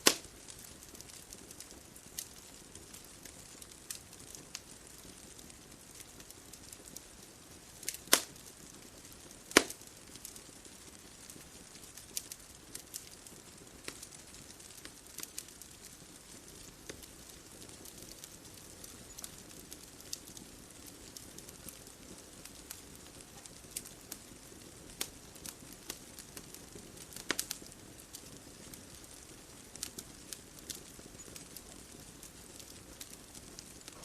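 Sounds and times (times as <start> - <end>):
bonfire crackling: 0.0 - 34.0.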